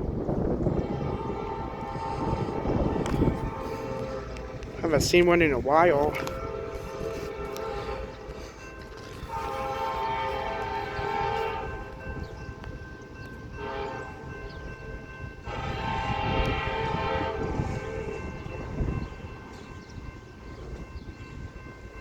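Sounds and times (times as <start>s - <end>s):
train rumble: 0.0s - 22.0s
locomotive air horn blasts: 0.6s - 5.2s, 6.1s - 12.1s, 13.5s - 14.6s, 15.4s - 19.2s.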